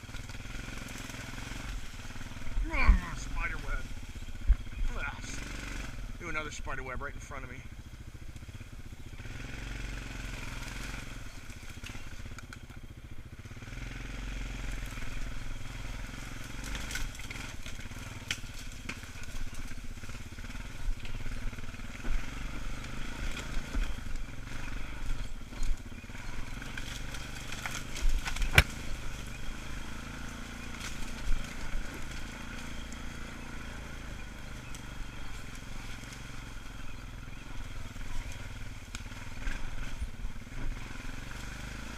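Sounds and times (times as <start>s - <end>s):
atv engine running: 0.0s - 41.9s
sharp knocks and crackles: 16.5s - 22.3s, 23.3s - 29.5s, 30.3s - 33.4s.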